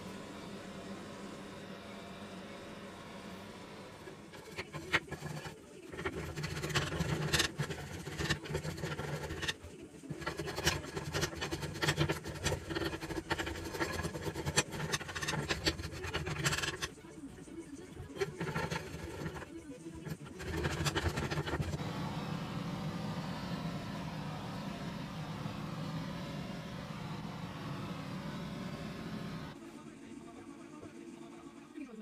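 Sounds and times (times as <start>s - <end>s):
tool scraping on wood: 4.1s - 17.0s, 18.0s - 29.6s
low hum: 20.0s - 29.6s.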